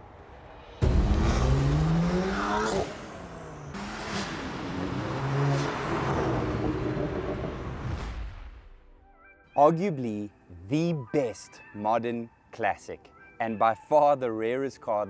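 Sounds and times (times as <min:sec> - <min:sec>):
car engine accelerating hard: 0:00.8 - 0:07.9.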